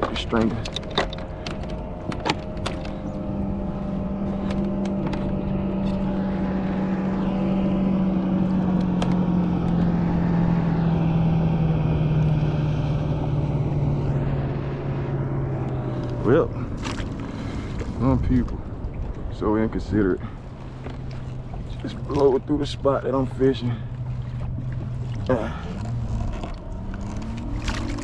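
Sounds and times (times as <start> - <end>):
sharp clicks and knocks: 0.0 - 3.0
outboard engine drone: 0.0 - 28.0.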